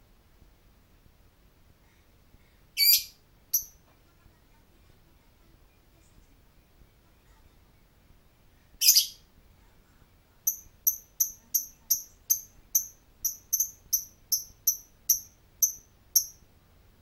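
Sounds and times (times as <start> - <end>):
lovebird squawk: 2.8 - 3.1, 8.8 - 9.2
lovebird chirping: 2.8 - 3.8, 8.8 - 9.3, 10.4 - 16.5.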